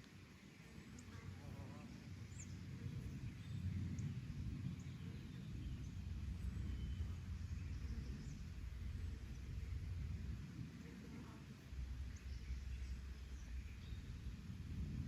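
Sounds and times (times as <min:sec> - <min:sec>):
wind rumble on microphone: 0:00.0 - 0:15.0
faint bird chirps: 0:04.8 - 0:09.5.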